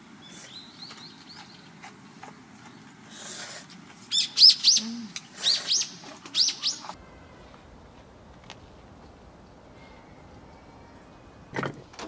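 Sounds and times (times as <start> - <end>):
small bird chirping: 4.1 - 7.0.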